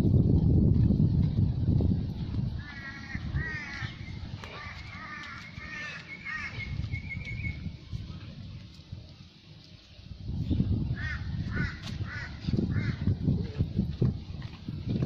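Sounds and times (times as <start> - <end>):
bird calling harsh notes: 2.6 - 7.6.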